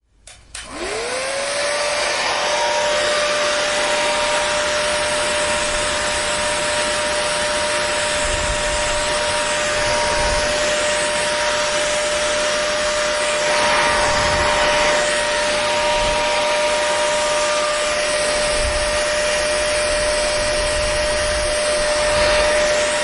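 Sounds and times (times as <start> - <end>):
hair dryer switch click: 0.2 - 0.8
hair dryer running: 0.2 - 23.0.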